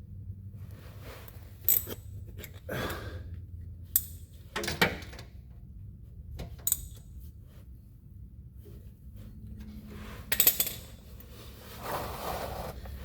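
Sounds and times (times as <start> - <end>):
steady low hum: 0.0 - 13.0
short scrape: 11.3 - 13.0.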